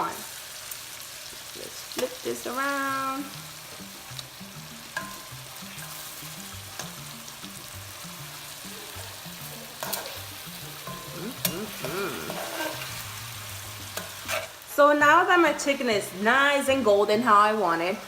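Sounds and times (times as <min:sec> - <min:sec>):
chicken sizzling in hot oil: 0:00.0 - 0:18.0
utensils clicking against pan: 0:09.8 - 0:12.9.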